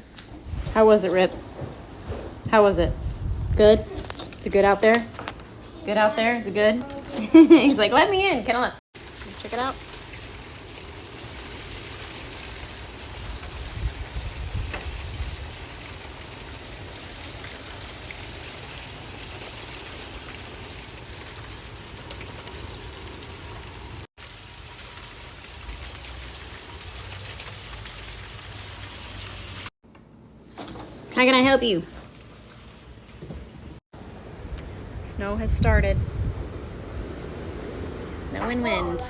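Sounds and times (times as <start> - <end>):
wind rumble on microphone: 0.4 - 0.9, 2.4 - 4.1, 13.1 - 15.8, 34.3 - 39.0
steady rain falling: 9.0 - 29.7.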